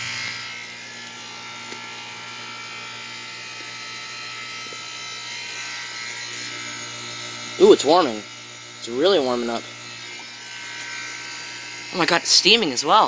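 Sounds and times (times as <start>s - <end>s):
air conditioner compressor buzzing hum: 0.0s - 13.0s.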